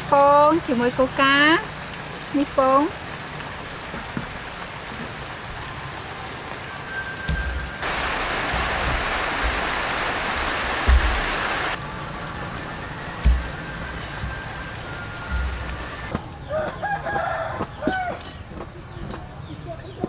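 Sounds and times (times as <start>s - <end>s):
steady rain falling: 0.0s - 20.0s
low thumps: 7.3s - 11.8s, 13.2s - 14.5s.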